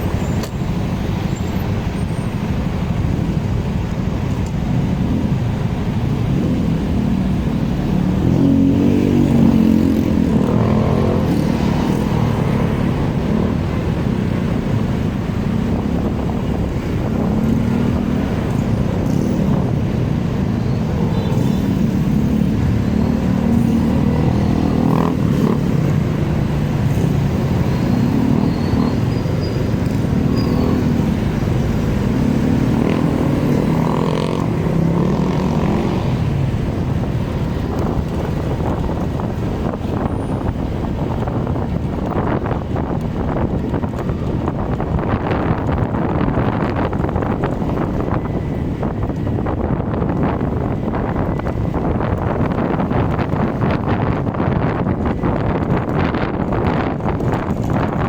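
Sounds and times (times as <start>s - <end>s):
road noise rumble: 0.0s - 58.0s
motorcycle engine revving: 6.2s - 14.0s, 15.5s - 40.1s.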